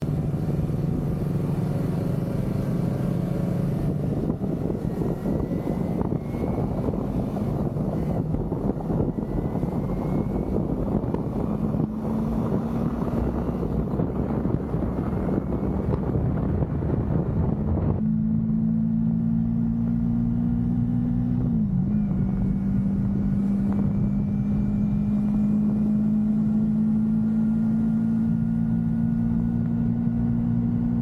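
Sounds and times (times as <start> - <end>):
motorcycle engine running: 0.0 - 31.0
wind rushing: 3.7 - 19.8.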